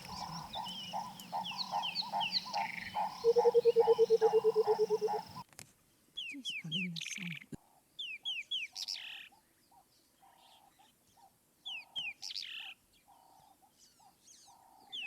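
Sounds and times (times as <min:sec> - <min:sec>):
low bird notes: 0:00.0 - 0:05.4.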